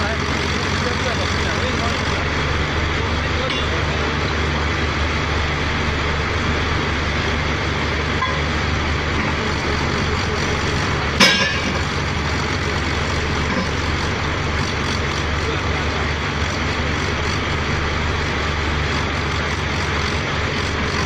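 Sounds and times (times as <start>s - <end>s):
drilling rig machinery running: 0.0s - 21.0s
sharp metallic clank: 11.2s - 11.9s.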